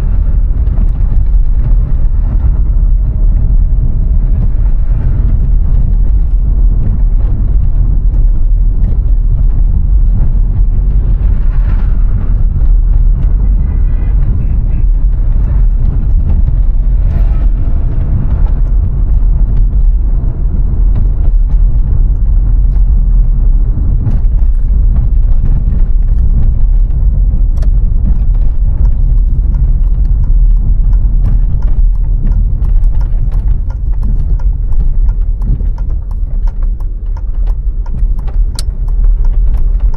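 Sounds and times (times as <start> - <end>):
car driving rumble: 0.0 - 39.9
small clicks and knocks: 24.1 - 39.9.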